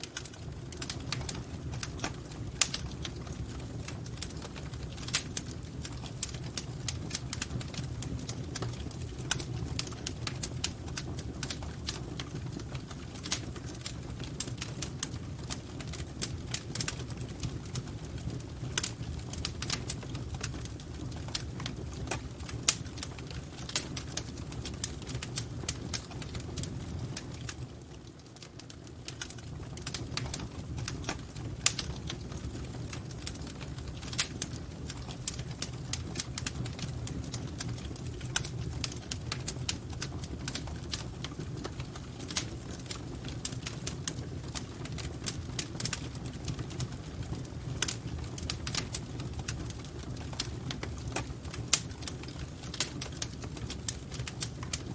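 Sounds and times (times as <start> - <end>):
low rumble of flames: 0.0 - 54.9
wood fire crackling: 0.0 - 54.9.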